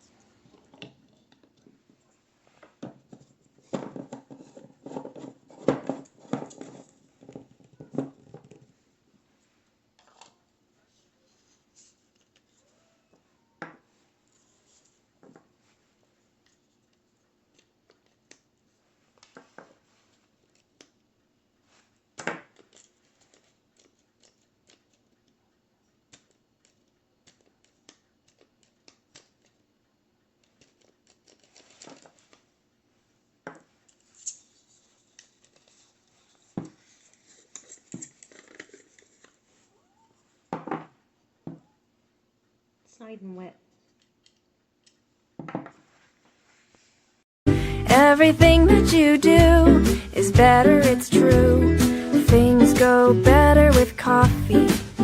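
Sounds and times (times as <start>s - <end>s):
plastic parts clicking and knocking: 2.6s - 8.8s, 22.2s - 25.4s, 26.0s - 32.5s, 33.4s - 39.4s.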